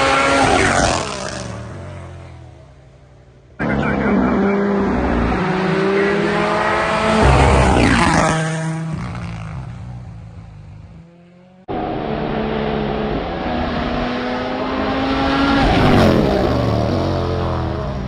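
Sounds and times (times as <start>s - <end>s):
rally car approaching: 0.0s - 18.0s
rally car passing at speed: 3.6s - 18.0s.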